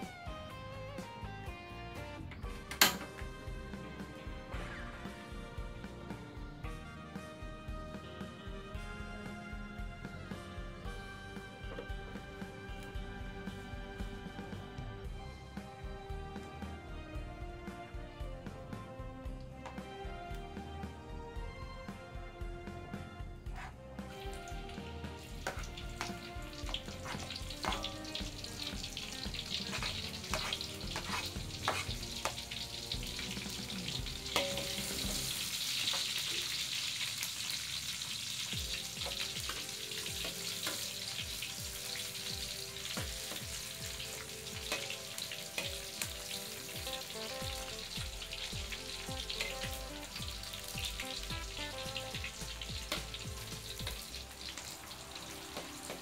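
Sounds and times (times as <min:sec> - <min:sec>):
background music: 0:00.0 - 0:56.0
spatula scraping a wok: 0:23.5 - 0:24.4, 0:25.2 - 0:38.0
food sizzling in hot oil: 0:23.6 - 0:56.0.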